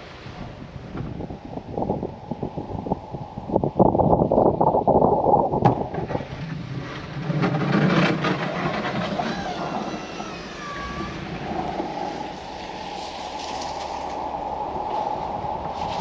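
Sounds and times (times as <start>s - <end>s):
rough scraping of snow: 6.3s - 16.0s
short wavering squeal: 9.0s - 15.0s.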